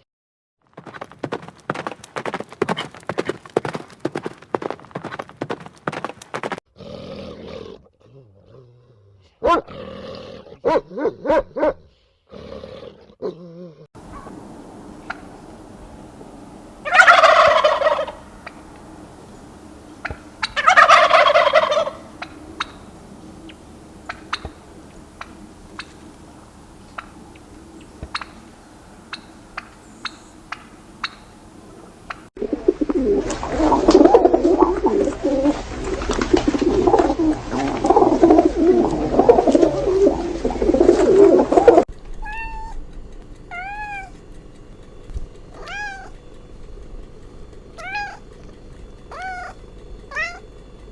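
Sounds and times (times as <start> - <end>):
dense noisy clamour: 14.0 - 32.3
short rising and falling calls: 14.0 - 32.3
turkey gobbling: 14.0 - 41.8.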